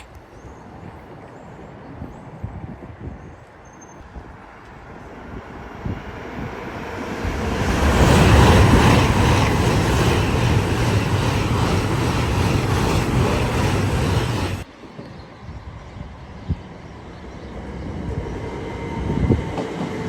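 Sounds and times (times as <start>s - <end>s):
train passing at speed: 4.0s - 20.0s.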